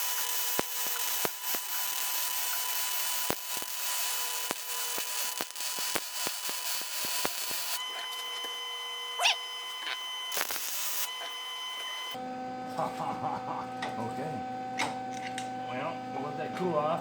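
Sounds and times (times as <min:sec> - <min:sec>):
welding arc crackling and popping: 0:00.0 - 0:07.8, 0:09.4 - 0:12.2
welder steady hum: 0:00.0 - 0:16.7.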